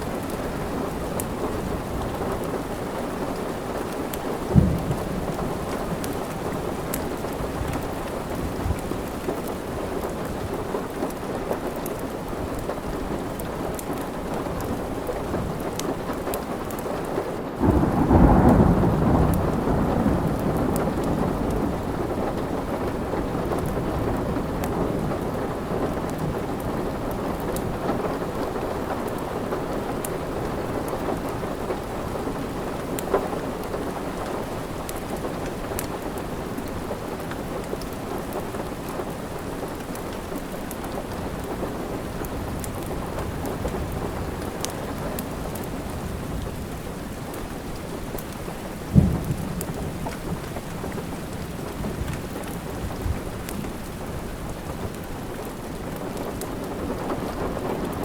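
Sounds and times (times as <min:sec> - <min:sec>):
wood fire crackling: 0:00.0 - 0:18.6, 0:20.4 - 0:58.0
steady rain: 0:00.0 - 0:58.0
thunder clap rumbling: 0:00.1 - 0:11.0, 0:17.6 - 0:38.8, 0:40.9 - 0:55.0.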